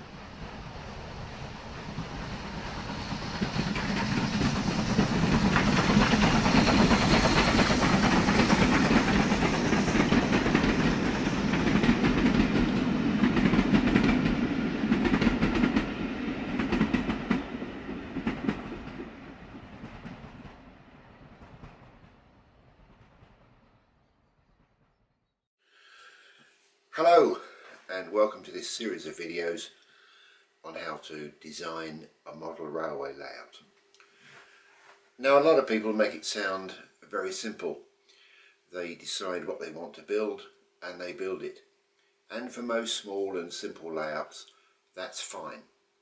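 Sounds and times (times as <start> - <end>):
train passing with wheel clatter: 0.0 - 25.1.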